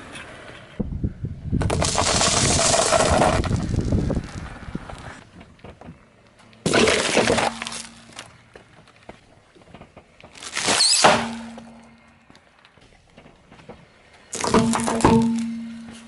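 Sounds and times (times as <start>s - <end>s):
objects crunching under car tyre: 1.6s - 16.0s.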